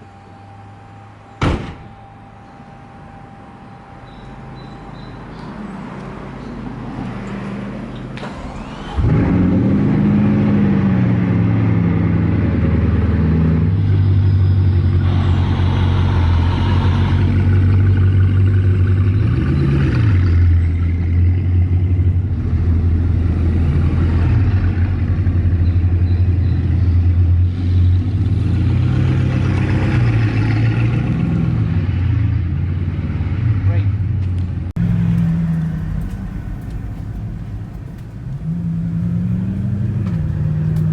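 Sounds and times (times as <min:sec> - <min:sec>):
car engine revving: 0:08.2 - 0:32.2, 0:34.8 - 0:40.9.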